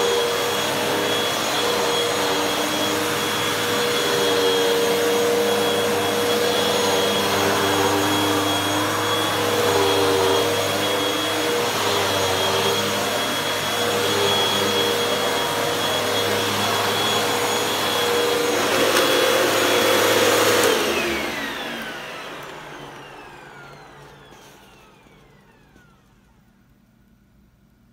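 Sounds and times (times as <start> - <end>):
vacuum cleaner running: 0.0 - 26.9.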